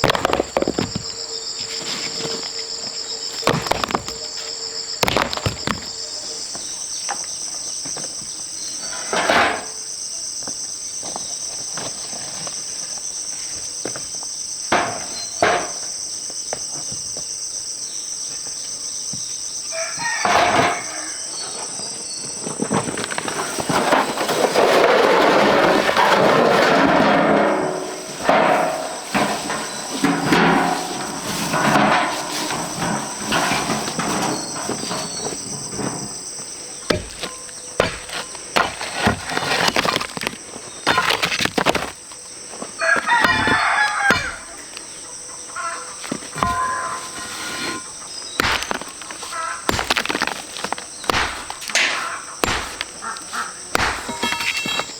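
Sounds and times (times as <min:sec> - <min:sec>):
drawn-out animal call: 0:45.5 - 0:48.0
sharp knocks: 0:48.4 - 0:54.9.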